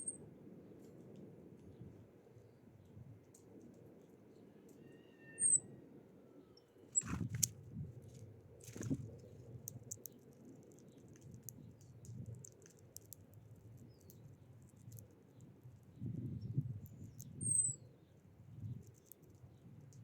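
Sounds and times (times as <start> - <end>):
high bird chirps: 4.8 - 5.7
birds tapping and clicking: 8.6 - 16.1, 16.8 - 17.5, 18.8 - 20.0.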